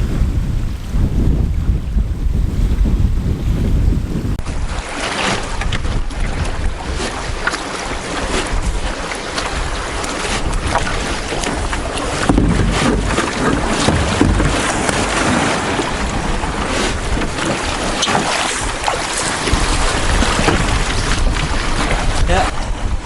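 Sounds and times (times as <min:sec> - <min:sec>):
wind buffeting microphone: 0:00.0 - 0:23.0
lake water splashing: 0:04.4 - 0:22.7.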